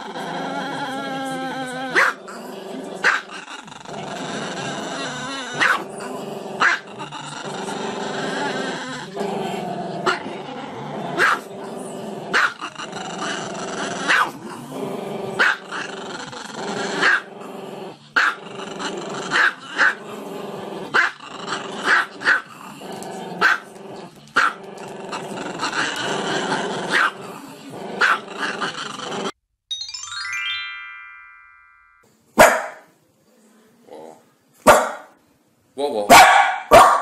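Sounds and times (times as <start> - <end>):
small dog howling growl: 0.0 - 2.2
dog short sharp barks: 36.1 - 37.0.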